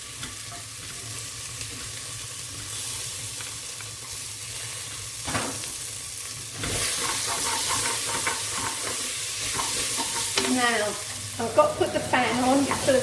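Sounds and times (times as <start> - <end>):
paste sizzling in a pan: 0.0 - 13.0
scrape in a pan: 6.6 - 10.5.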